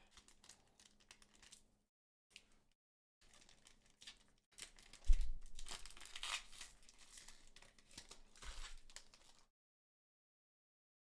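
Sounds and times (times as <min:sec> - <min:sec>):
foil pack tearing and crinkling: 0:03.2 - 0:09.5.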